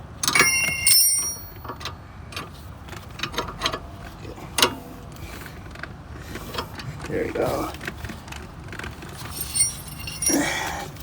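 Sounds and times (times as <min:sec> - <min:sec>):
metal wrenches clanking: 0:00.2 - 0:02.0, 0:09.0 - 0:11.0.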